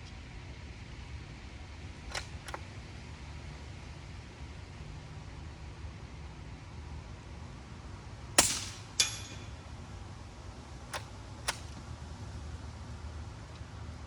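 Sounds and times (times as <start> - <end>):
suppressed rifle shot: 8.4 - 9.5.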